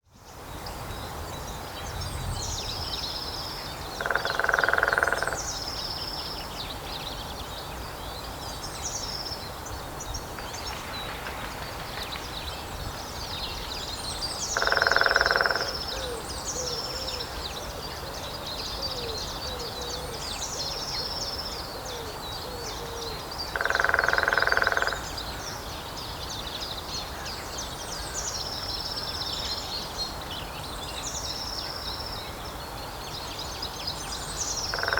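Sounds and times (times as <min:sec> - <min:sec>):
birds singing: 0:00.2 - 0:34.9
woodpecker drumming on a tree: 0:04.0 - 0:05.5, 0:10.4 - 0:12.6, 0:14.4 - 0:16.1, 0:23.5 - 0:25.2, 0:34.7 - 0:34.9.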